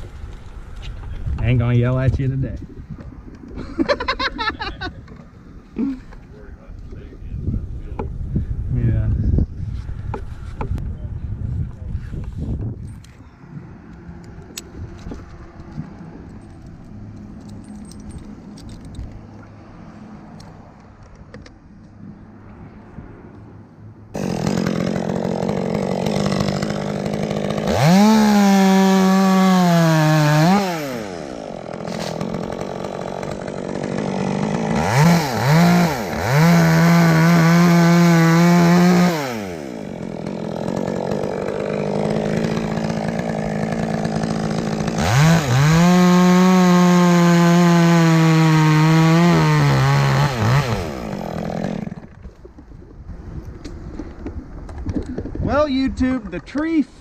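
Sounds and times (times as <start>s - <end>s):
chainsaw idling and revving: 24.1s - 52.2s
chainsaw cutting wood: 24.1s - 52.6s.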